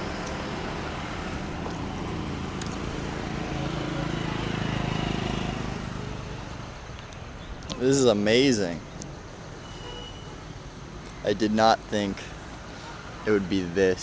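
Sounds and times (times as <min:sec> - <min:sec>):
vehicle engine running: 0:00.0 - 0:06.9
road noise: 0:00.0 - 0:14.0.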